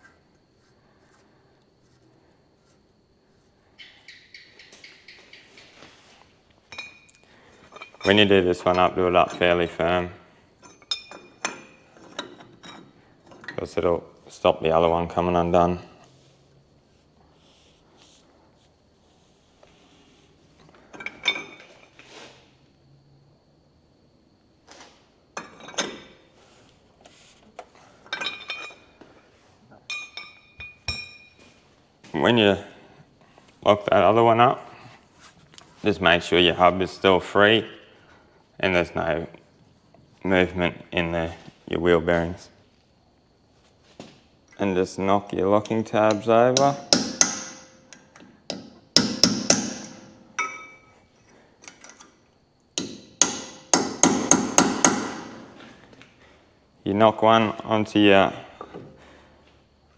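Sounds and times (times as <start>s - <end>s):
steel tools clinking on metal: 6.7s - 9.6s, 10.6s - 13.7s, 28.0s - 29.0s, 29.8s - 31.4s, 49.7s - 51.0s
hammer tapping metal: 46.1s - 50.9s, 52.8s - 55.5s.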